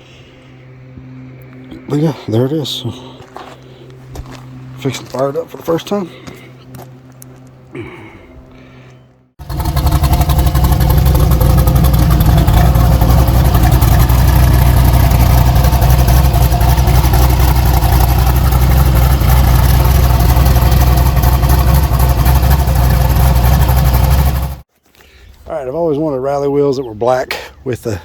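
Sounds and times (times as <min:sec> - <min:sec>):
car engine running loud: 0:09.4 - 0:24.7.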